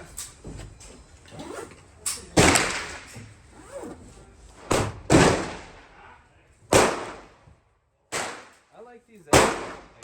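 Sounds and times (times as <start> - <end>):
gunshots with echo: 6.7 - 7.3, 9.3 - 10.0.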